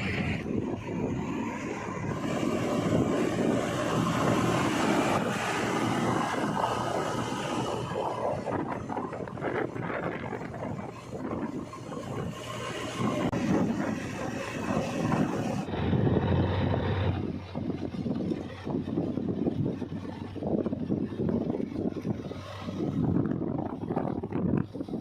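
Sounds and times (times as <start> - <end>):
heavy diesel machinery running: 0.0 - 25.0.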